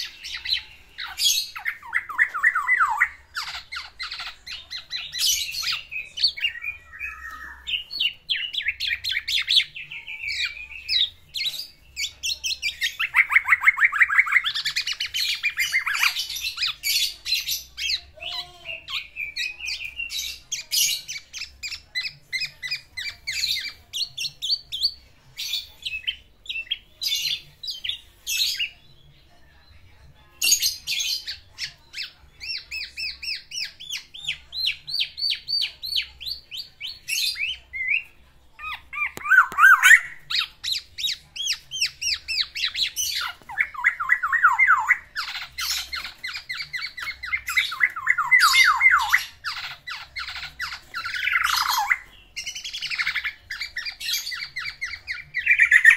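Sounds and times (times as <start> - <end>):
harsh bird calls: 0.0 - 28.8, 30.4 - 55.9.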